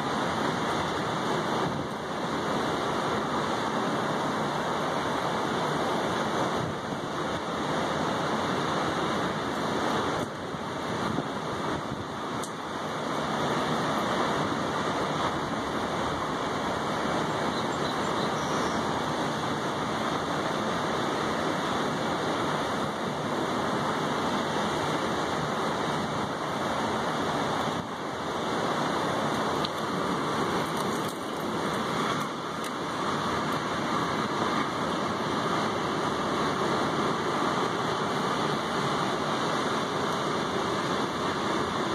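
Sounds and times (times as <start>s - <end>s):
rain hitting a table and railing: 6.4s - 17.1s, 19.1s - 41.9s.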